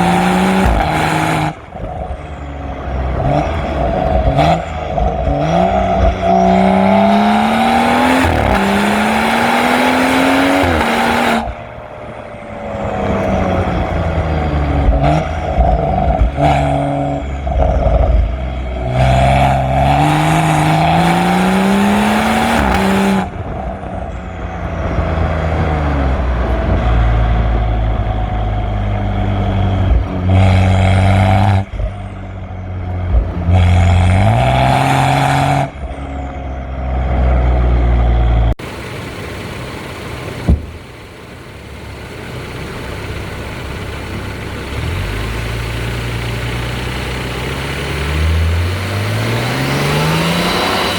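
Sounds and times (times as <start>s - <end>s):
car engine revving hard: 0.0s - 24.0s, 24.9s - 32.0s, 33.1s - 35.9s, 36.9s - 50.9s.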